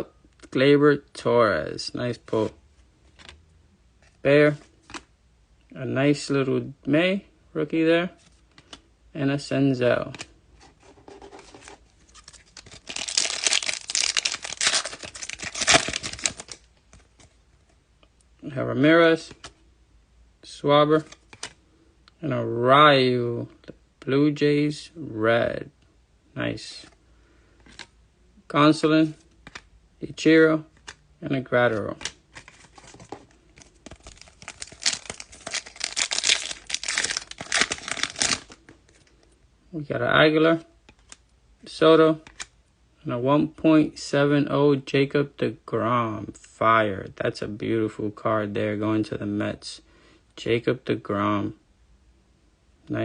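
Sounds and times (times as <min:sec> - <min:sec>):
foil wrapper tearing and crinkling: 0:12.2 - 0:16.6, 0:33.9 - 0:38.6.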